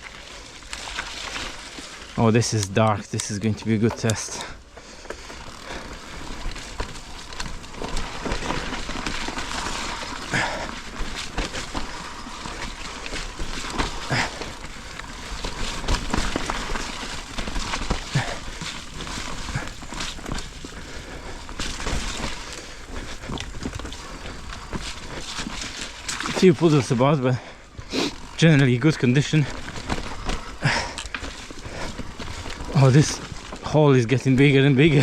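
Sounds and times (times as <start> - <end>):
bike tyres on dirt trail: 0.0 - 35.0
bike knocks and rattles: 5.1 - 26.4.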